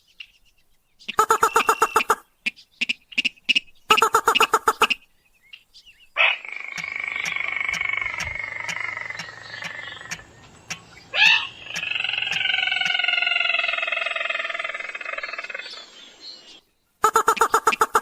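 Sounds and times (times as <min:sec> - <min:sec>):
bird lure call: 0:01.1 - 0:02.2, 0:02.8 - 0:05.0, 0:06.2 - 0:15.9, 0:17.0 - 0:18.0.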